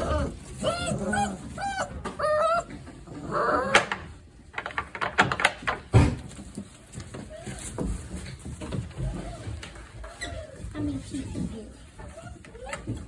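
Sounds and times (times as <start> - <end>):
puppy whining yelps: 0.0 - 3.9
puppy rough cry: 0.0 - 4.1.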